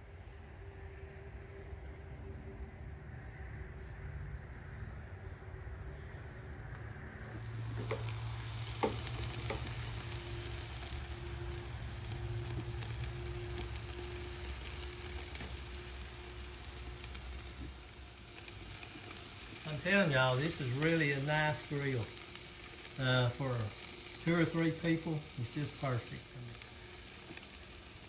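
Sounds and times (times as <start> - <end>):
patties sizzling on grill: 6.9 - 28.0.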